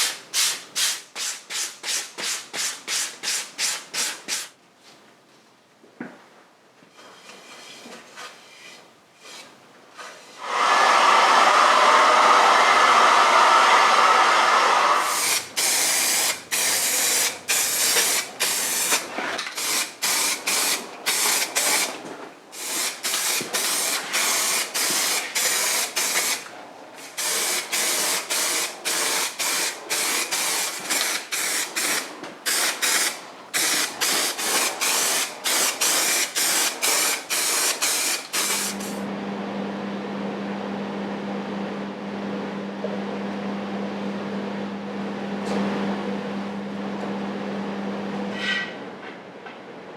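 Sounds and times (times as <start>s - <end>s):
spray hissing in short bursts: 0.0s - 4.5s, 15.0s - 19.0s, 19.6s - 21.9s, 22.6s - 26.4s, 27.0s - 39.0s.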